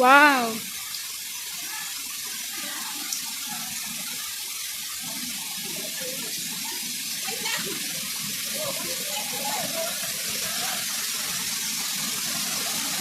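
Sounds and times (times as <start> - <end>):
waterfall rushing: 1.5 - 13.0.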